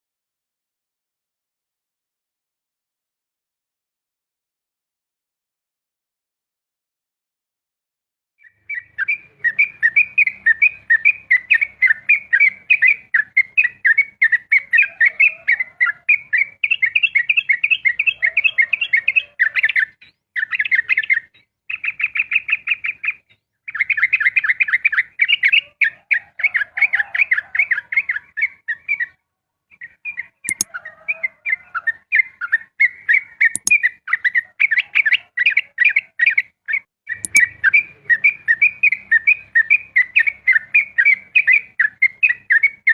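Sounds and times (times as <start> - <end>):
bird singing chattering notes: 29.8 - 30.7, 32.2 - 34.4, 36.8 - 42.9
sharp clicks: 33.6 - 33.8, 37.2 - 37.5.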